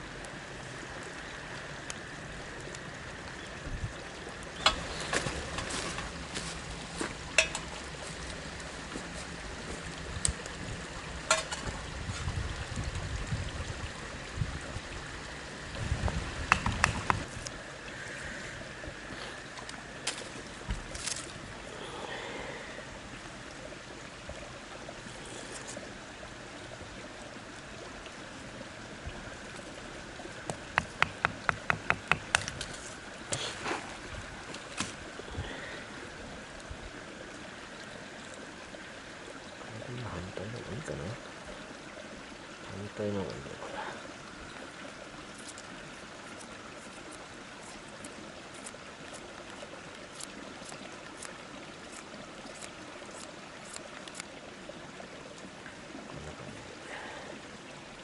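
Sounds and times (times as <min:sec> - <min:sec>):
running water: 0:00.0 - 0:58.0.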